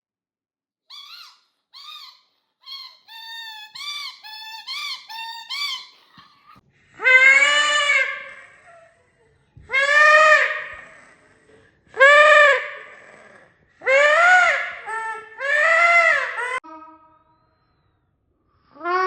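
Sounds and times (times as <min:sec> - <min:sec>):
squeaky dog toy squeaking: 0:00.9 - 0:06.6.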